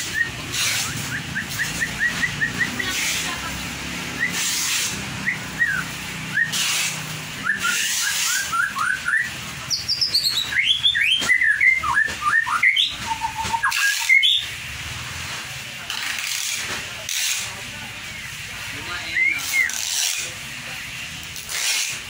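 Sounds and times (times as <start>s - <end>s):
bird singing whistled notes: 0.0s - 2.9s, 5.2s - 6.6s, 7.4s - 14.5s.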